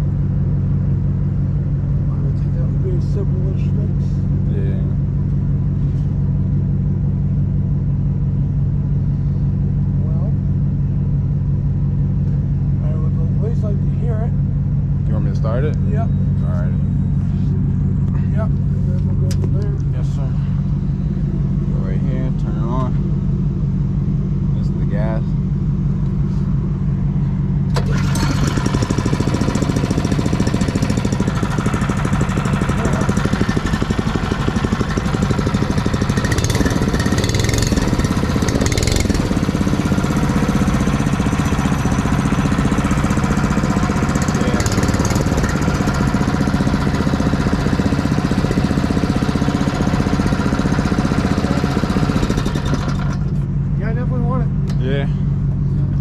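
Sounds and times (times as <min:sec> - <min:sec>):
small gas engine running: 0:12.8 - 0:14.4, 0:24.5 - 0:56.0.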